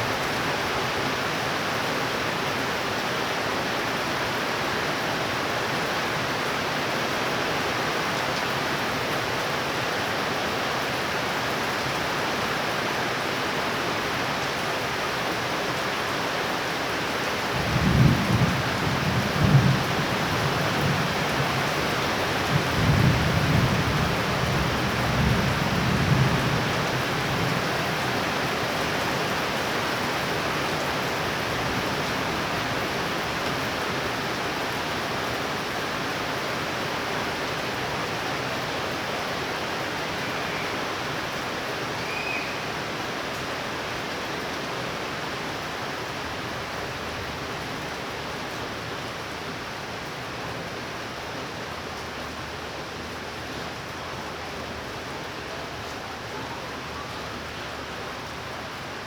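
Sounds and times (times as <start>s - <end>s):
heavy rain pouring: 0.0s - 59.0s
faint short chirps: 42.0s - 42.6s.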